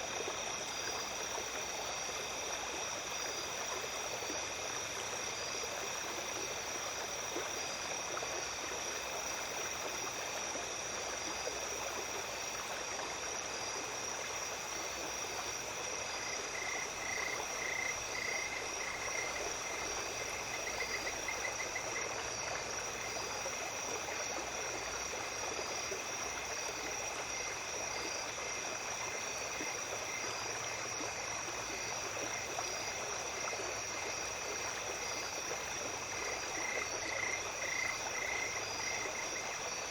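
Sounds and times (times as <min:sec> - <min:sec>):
night insects trilling: 0:00.0 - 0:39.9
small stream flowing: 0:00.0 - 0:39.9
fast pulsing insect call: 0:14.4 - 0:28.3, 0:29.0 - 0:39.9.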